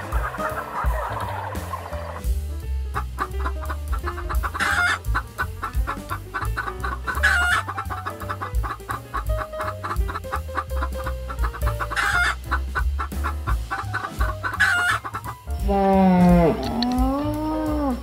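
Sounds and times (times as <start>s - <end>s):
chickens clucking: 0.0s - 2.3s, 2.9s - 18.0s
background music with low beat: 0.0s - 18.0s
long drawn-out chicken call: 12.0s - 12.4s.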